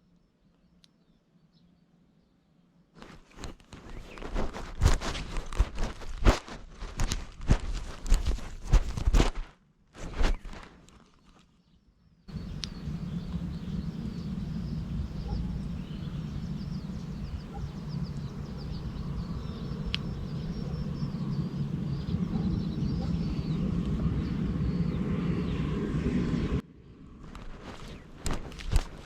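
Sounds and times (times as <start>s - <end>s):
small birds chirping: 10.3s - 26.6s
steady low rumble: 12.3s - 28.2s.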